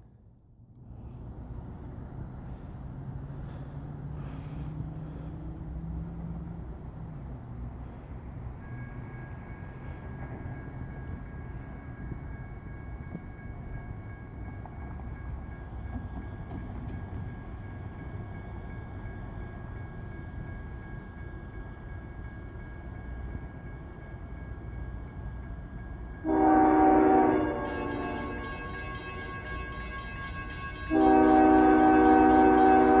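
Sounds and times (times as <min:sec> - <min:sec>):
diesel locomotives rumbling: 0:00.0 - 0:33.0
locomotive air horn blast: 0:26.2 - 0:28.4, 0:30.9 - 0:33.0.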